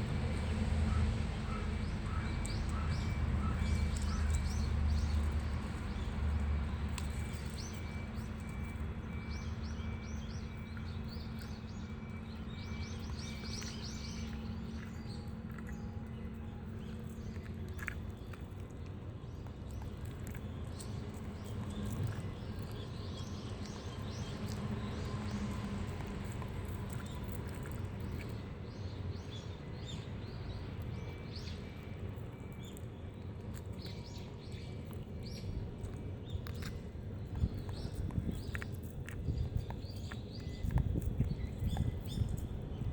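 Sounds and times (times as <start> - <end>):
steady low hum: 0.0 - 42.9
small birds chirping: 0.3 - 42.9.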